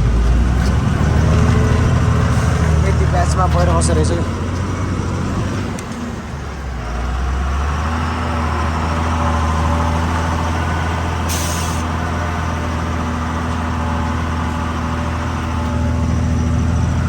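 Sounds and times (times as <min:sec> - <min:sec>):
truck diesel engine running: 0:00.0 - 0:17.0
air brakes hiss: 0:11.3 - 0:11.9.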